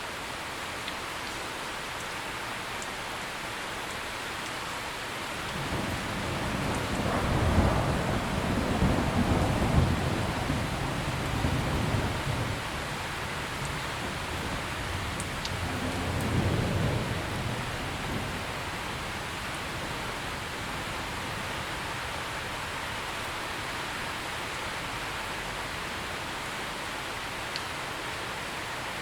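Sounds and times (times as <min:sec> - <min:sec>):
heavy rain: 0:00.0 - 0:29.0
low roll of thunder: 0:05.4 - 0:22.8.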